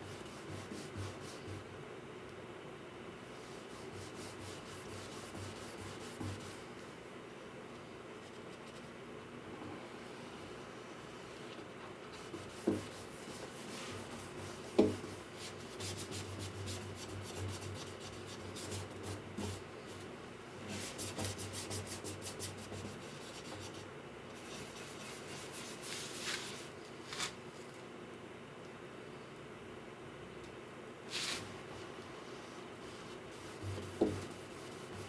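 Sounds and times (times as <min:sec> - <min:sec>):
hand tool rubbing on wood: 0:32.9 - 0:35.0.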